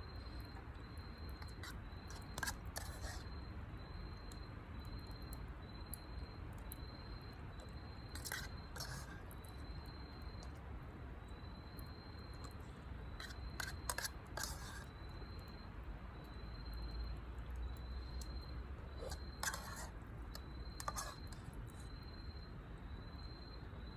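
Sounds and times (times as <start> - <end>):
faint high chirp: 0.0 - 10.6
spoon scraping a dish: 0.2 - 3.4, 7.6 - 9.7, 12.3 - 15.5, 18.2 - 22.0.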